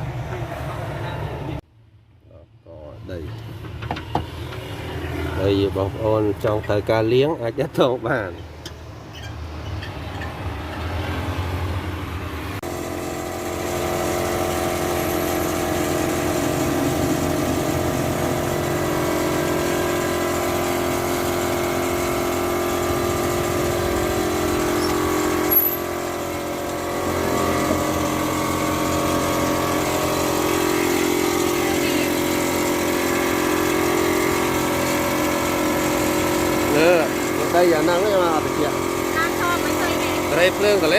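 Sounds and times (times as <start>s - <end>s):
motor humming: 12.7s - 40.9s.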